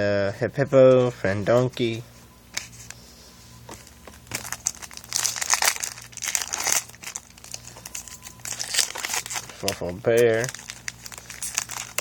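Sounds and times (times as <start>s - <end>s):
foil wrapper crinkling: 3.8s - 12.0s.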